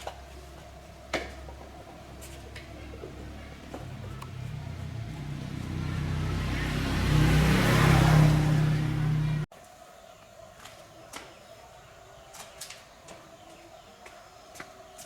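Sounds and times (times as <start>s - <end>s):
lawn mower engine revving: 2.2s - 9.5s.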